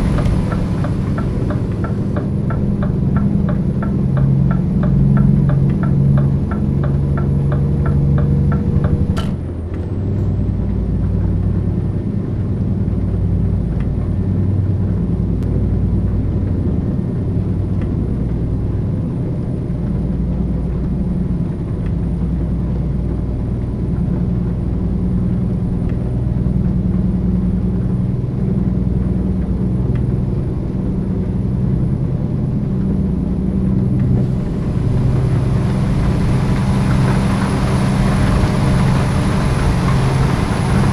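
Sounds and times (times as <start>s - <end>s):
heavy diesel truck engine droning: 0.0s - 16.2s, 18.0s - 40.9s.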